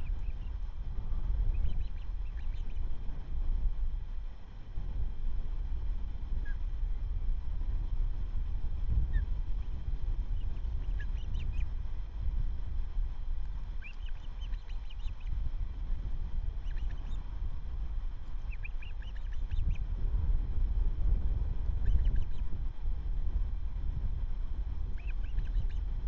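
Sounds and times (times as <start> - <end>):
osprey chirping: 0.0 - 0.6, 1.4 - 2.9, 10.3 - 11.8, 13.8 - 15.4, 16.5 - 17.2, 18.3 - 19.8, 21.8 - 22.5, 25.0 - 25.8
wind rumble on microphone: 0.0 - 26.0.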